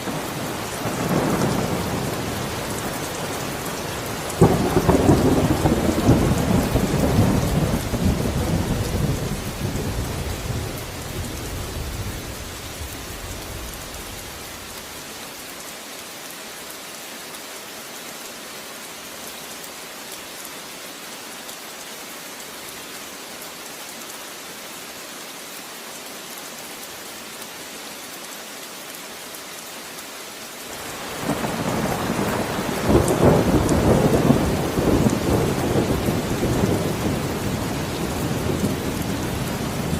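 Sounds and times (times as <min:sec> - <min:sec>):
steady rain: 0:00.0 - 0:39.9
rolling thunder: 0:04.4 - 0:14.4, 0:30.9 - 0:39.9.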